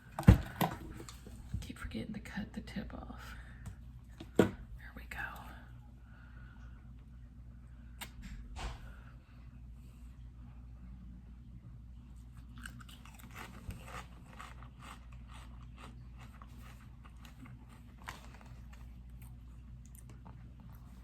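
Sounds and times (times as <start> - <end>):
low steady hum: 0.0 - 21.0
person chewing food: 12.3 - 21.0
crisp crunches: 12.6 - 19.3.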